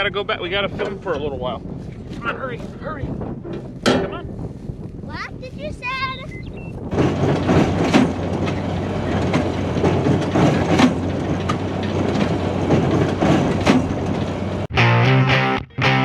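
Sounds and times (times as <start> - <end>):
baler clanking: 0.0 - 4.3, 5.9 - 14.7
tractor engine hum: 0.0 - 14.7
baler rhythmic clatter: 6.9 - 14.7.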